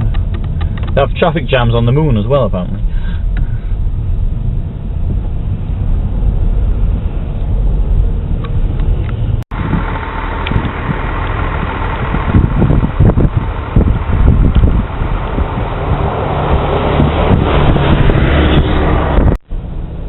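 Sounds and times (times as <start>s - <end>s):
car engine and road noise: 0.0s - 20.0s
wind buffeting microphone: 3.8s - 19.4s.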